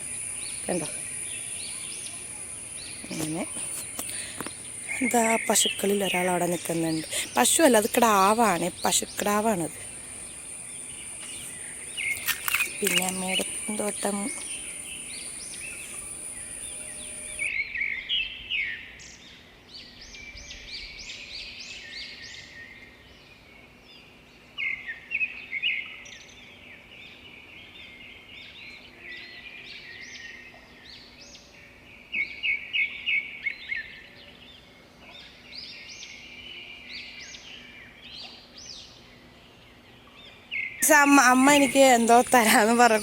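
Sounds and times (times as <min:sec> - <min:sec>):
birds chirping: 0:00.0 - 0:17.6, 0:35.1 - 0:43.0.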